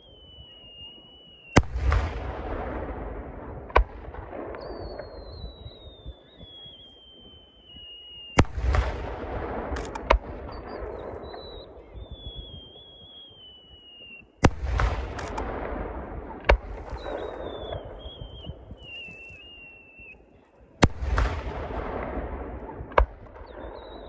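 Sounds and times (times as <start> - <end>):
crackling firework shower: 0.0 - 24.0
firework shells bursting: 0.1 - 20.1
sharp cracks: 8.3 - 19.7, 20.8 - 24.0.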